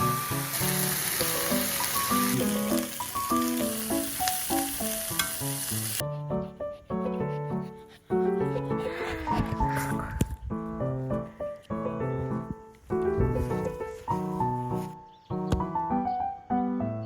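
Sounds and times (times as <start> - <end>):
food sizzling in a pan: 0.0 - 6.0
light background music: 0.0 - 17.0.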